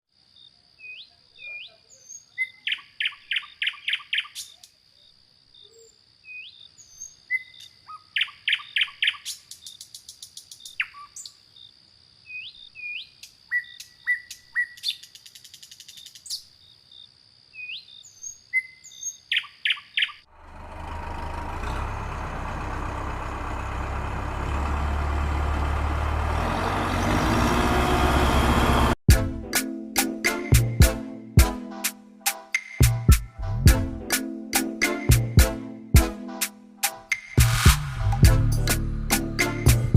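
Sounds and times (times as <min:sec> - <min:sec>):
birds chirping: 0:26.3 - 0:27.7.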